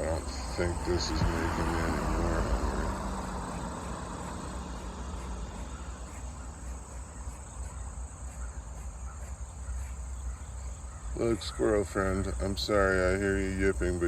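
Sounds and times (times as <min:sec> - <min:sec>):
continuous low rumble: 0:00.0 - 0:14.0
insects trilling: 0:00.0 - 0:14.0.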